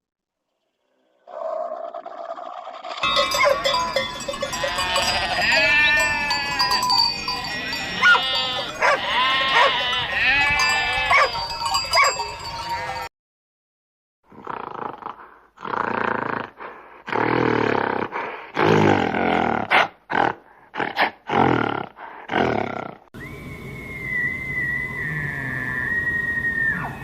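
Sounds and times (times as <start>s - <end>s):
large animal roaring: 0.9s - 3.1s, 25.0s - 26.0s
flock bleating: 3.0s - 11.6s, 12.5s - 13.1s
steady whistling tone: 23.2s - 27.0s.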